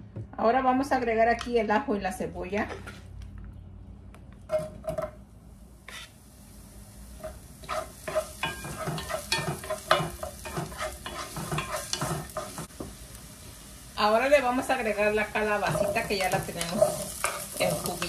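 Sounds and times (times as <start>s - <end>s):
garlic and onion sizzling: 4.5s - 18.0s
wooden spoon scraping a pot: 5.9s - 6.2s, 7.3s - 12.7s, 15.5s - 18.0s.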